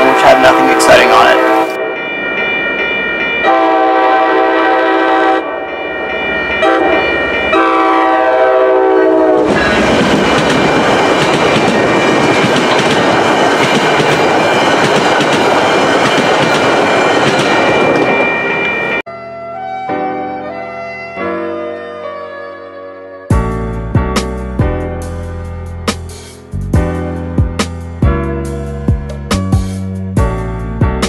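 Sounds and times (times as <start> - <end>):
train horn blasts: 3.4 - 5.6, 6.6 - 9.6
train wheels rumbling past: 9.0 - 19.0
music: 19.1 - 31.0.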